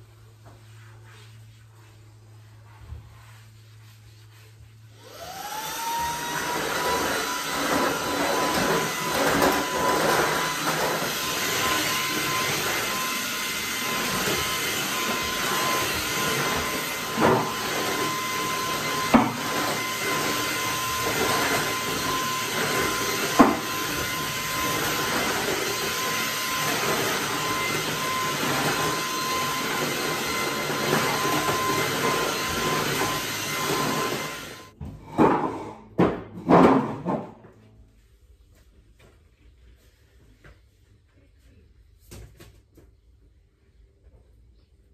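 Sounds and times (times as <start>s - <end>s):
vacuum cleaner motor whine: 5.0s - 34.8s.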